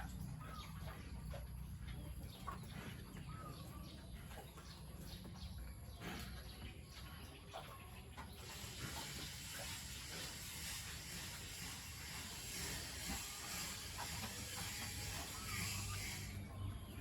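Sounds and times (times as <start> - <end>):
water spraying hiss: 8.4 - 16.4.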